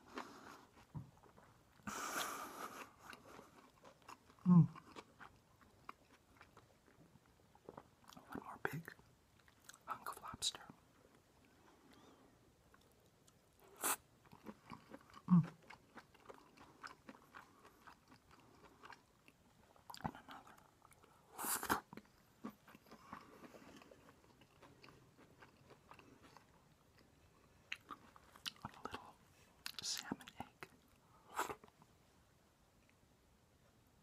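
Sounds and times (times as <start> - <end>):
chewing with wet mouth clicks: 2.2 - 9.9, 14.2 - 27.1, 27.7 - 31.8.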